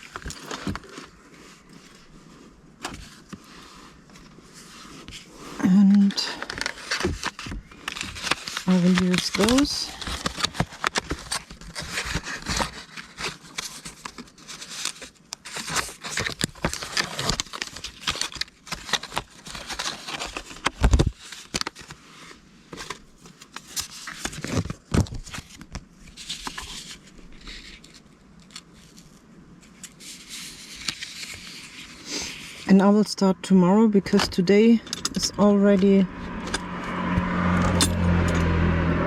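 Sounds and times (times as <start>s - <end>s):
paper cards rustling: 0.0s - 33.0s.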